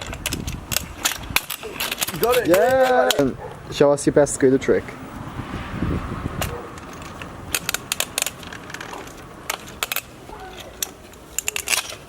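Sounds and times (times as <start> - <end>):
kick scooter clacking on ground: 0.0 - 3.6, 6.4 - 12.0.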